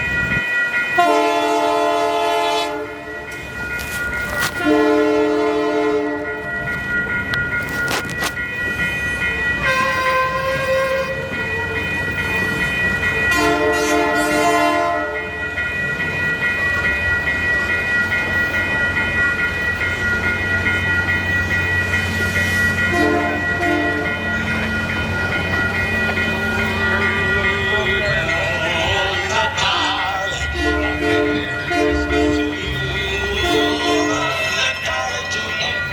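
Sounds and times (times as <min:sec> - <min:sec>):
steady high ringing: 0:00.0 - 0:35.9
train engines and wheels rumbling: 0:00.0 - 0:35.9
locomotive horn blasts: 0:01.0 - 0:03.0, 0:04.4 - 0:06.4, 0:09.6 - 0:11.3, 0:13.3 - 0:15.2, 0:22.9 - 0:24.1, 0:30.4 - 0:34.4.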